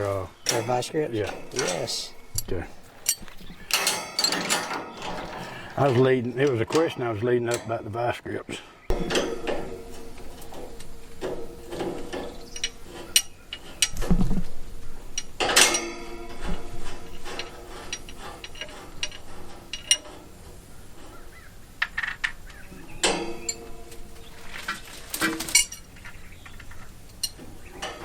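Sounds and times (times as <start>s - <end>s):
metal tools clicking and ratcheting: 0.0s - 7.8s, 9.0s - 14.0s, 15.1s - 20.4s, 23.0s - 28.0s
ringing metal clank: 0.0s - 7.8s, 8.9s - 14.0s, 15.1s - 20.3s, 22.9s - 26.0s.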